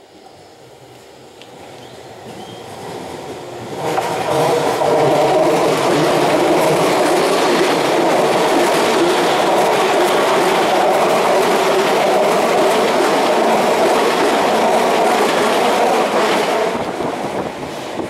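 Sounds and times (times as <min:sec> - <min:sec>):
train wheels running on rails: 0:00.0 - 0:18.0
clacks over rail joints: 0:03.8 - 0:16.9.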